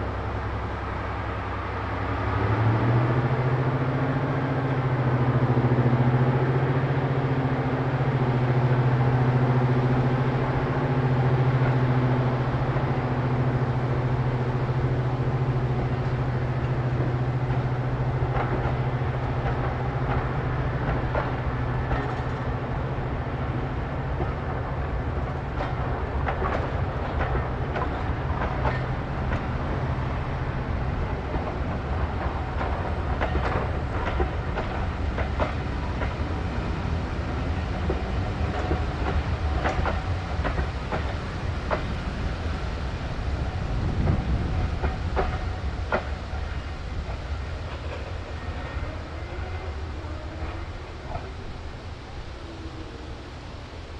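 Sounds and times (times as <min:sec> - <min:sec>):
diesel train engine drone: 0:00.0 - 0:53.9
wheels clicking over rail joints: 0:11.5 - 0:52.9.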